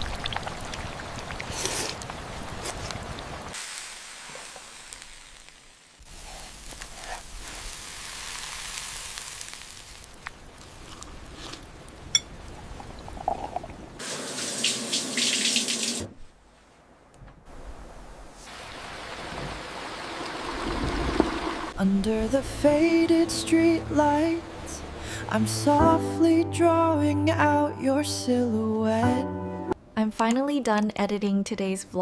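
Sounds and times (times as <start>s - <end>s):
running splashing water: 18.5s - 21.8s.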